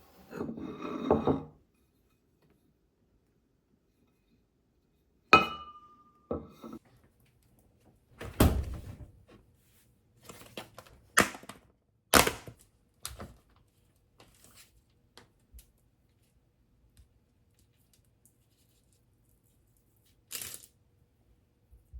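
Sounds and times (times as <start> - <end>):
sharp clink with ring: 5.4 - 6.3.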